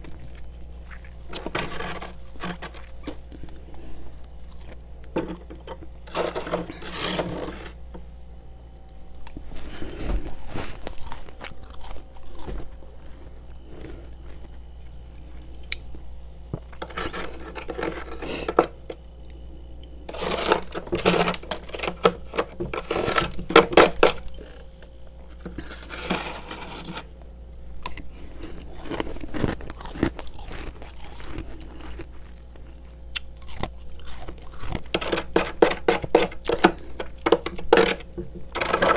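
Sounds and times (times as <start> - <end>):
frost crunching and crackling: 0.0 - 8.1, 8.9 - 38.9.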